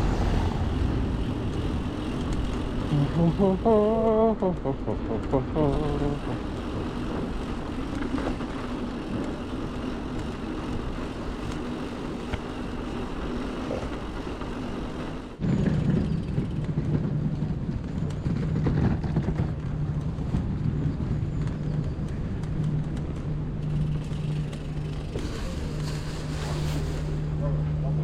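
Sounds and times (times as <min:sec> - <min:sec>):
city traffic: 0:00.0 - 0:28.0
steady low hum: 0:00.0 - 0:28.0
wind noise on microphone: 0:15.4 - 0:24.0.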